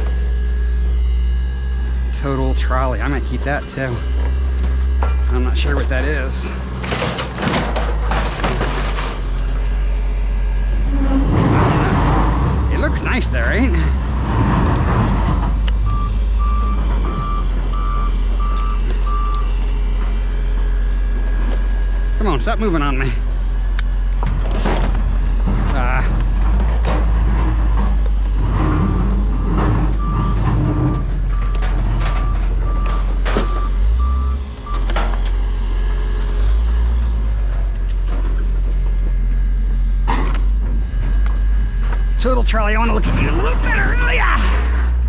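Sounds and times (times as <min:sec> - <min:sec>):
reversing alarm beeping: 0:00.0 - 0:24.1, 0:24.7 - 0:45.0
low engine rumble: 0:00.0 - 0:45.0.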